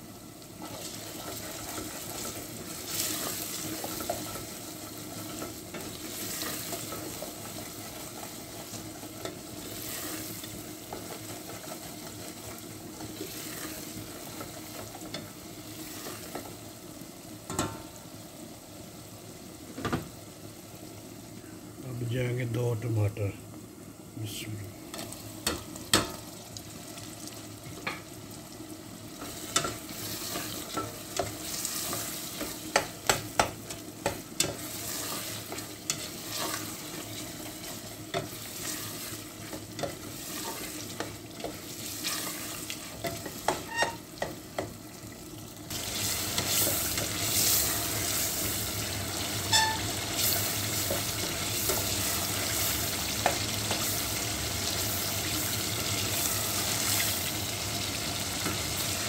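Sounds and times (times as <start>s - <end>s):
tomatoes sizzling in oil: 0.0s - 59.0s
spatula scraping against pot: 34.0s - 44.3s.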